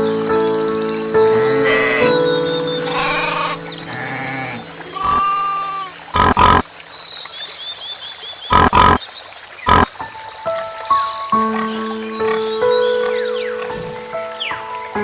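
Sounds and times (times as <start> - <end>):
background music: 0.0 - 5.1
high chirps: 0.6 - 6.6, 8.5 - 9.0, 9.7 - 9.9
animal grunting: 1.3 - 2.2, 2.8 - 6.6.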